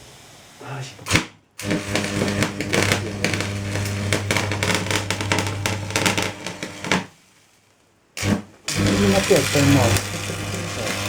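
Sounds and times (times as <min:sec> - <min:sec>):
welding arc crackling: 0:01.1 - 0:07.2, 0:08.2 - 0:11.0
mains buzz: 0:01.6 - 0:07.1, 0:08.2 - 0:11.0.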